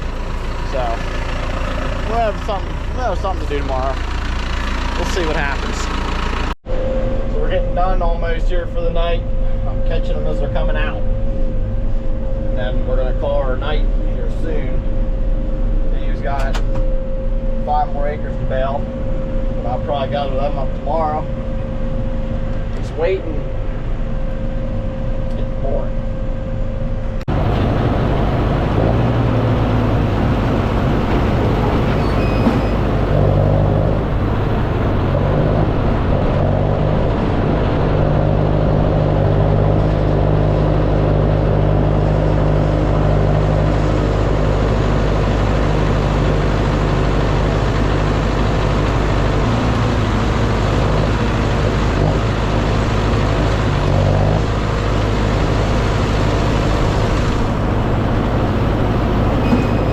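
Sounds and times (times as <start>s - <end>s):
tractor engine running: 0.0s - 6.6s, 26.2s - 59.9s.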